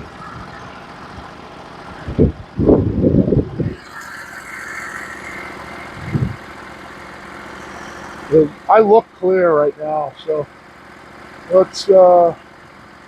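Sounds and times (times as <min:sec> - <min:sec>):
high steady whine: 0:00.0 - 0:10.5
sawmill engine idling: 0:00.0 - 0:13.0.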